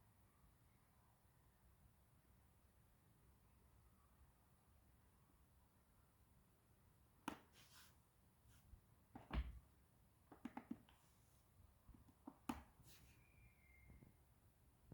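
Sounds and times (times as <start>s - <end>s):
faint high tone: 13.0s - 14.2s.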